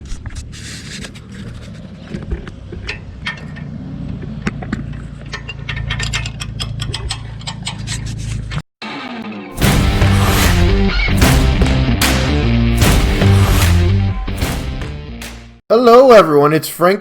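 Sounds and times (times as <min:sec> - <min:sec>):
engine running: 0:09.6 - 0:15.6.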